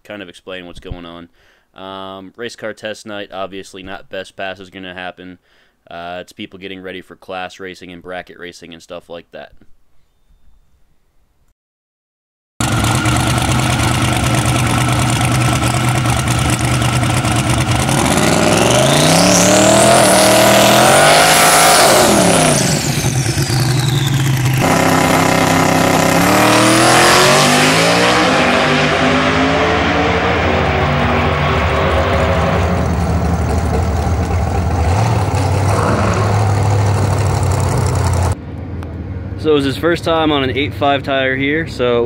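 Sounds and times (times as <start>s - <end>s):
race car engine revving: 12.6s - 38.4s
turbo whine: 12.6s - 38.4s.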